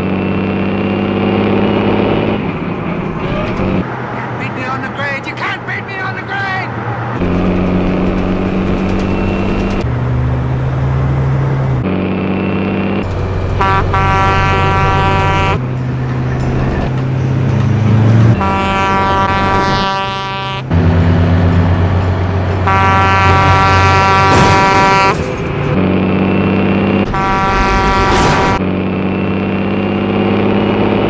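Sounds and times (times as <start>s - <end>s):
truck engine running: 0.0s - 31.0s
air horn blasts: 13.6s - 15.6s, 18.3s - 20.8s, 22.6s - 25.3s, 27.1s - 28.6s.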